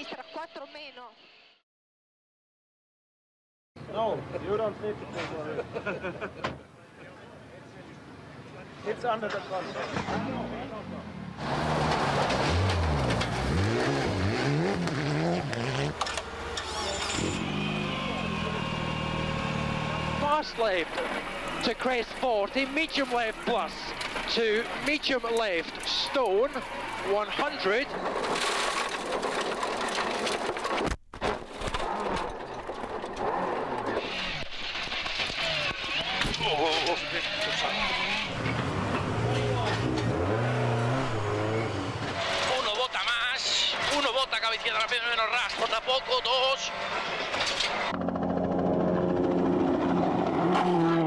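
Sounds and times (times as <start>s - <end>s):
road and wind noise: 3.8s - 29.8s, 32.4s - 45.8s, 46.5s - 51.0s
rally car engine revving: 10.0s - 25.0s, 33.0s - 51.0s.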